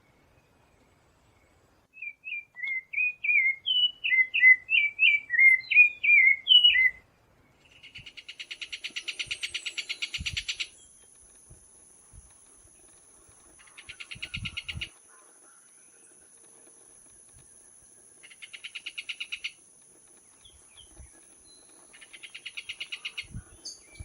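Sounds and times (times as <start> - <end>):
songbird singing repeated notes: 0.0 - 24.0
high insect trilling: 7.7 - 24.0.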